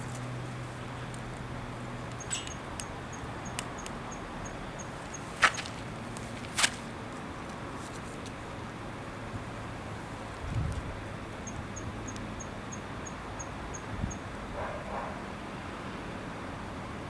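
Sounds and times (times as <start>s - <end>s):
faint high ticking: 1.1s - 6.3s
small clicks: 2.1s - 4.2s
sharp scrapes: 5.1s - 6.9s.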